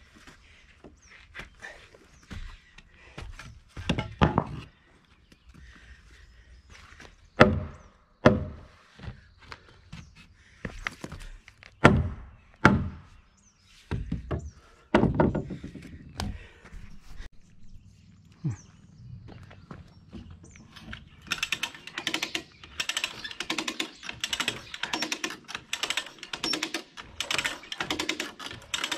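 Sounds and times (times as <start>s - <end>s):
wood knocking on wood: 3.4s - 4.7s, 13.9s - 16.5s.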